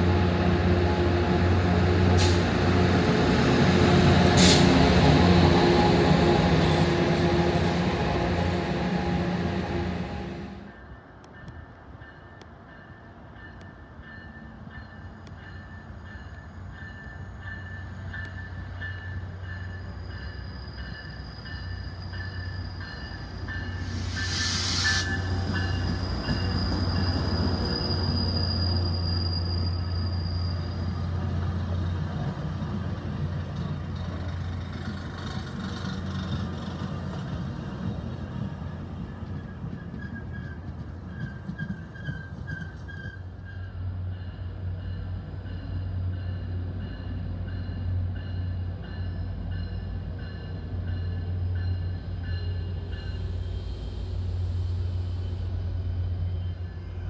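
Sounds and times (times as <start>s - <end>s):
train rolling past: 0.0s - 57.0s
train wheel squeal: 14.0s - 32.6s, 38.6s - 45.0s, 45.6s - 57.0s.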